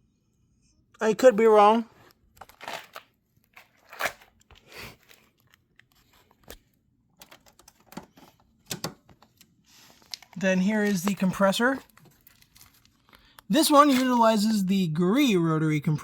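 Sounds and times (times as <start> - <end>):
rustling and clicking handling noises: 2.0 - 14.3.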